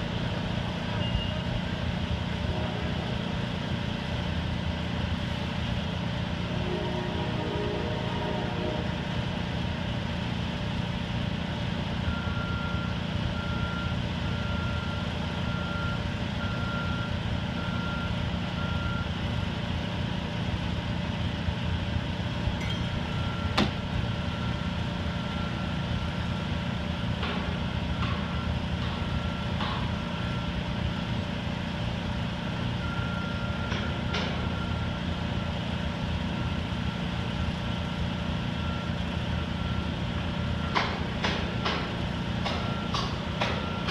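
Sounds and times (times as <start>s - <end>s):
crane diesel engine running: 0.0s - 43.9s
backup alarm beeping: 22.6s - 24.6s.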